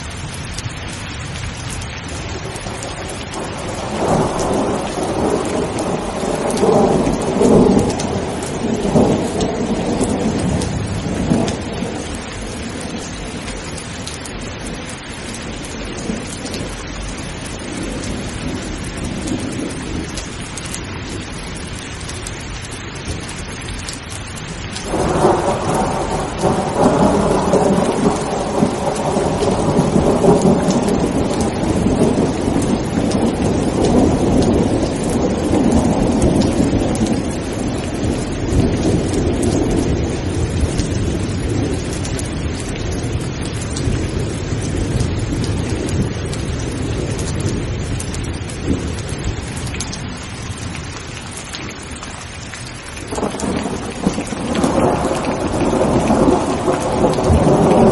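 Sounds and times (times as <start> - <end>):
heavy rain: 0.0 - 57.9
thunder rumbling: 2.0 - 21.8, 22.8 - 51.9, 53.0 - 57.9.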